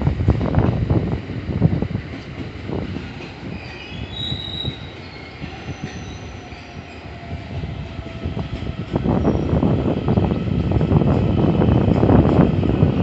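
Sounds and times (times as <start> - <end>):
train rumbling on rails: 0.0 - 13.0
steel wheels squealing: 3.4 - 7.5, 9.0 - 9.7.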